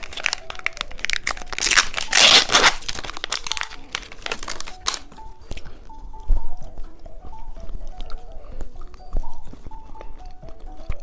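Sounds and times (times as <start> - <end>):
plastic wrapper crinkling: 0.0 - 5.7
faint background music: 0.0 - 11.0.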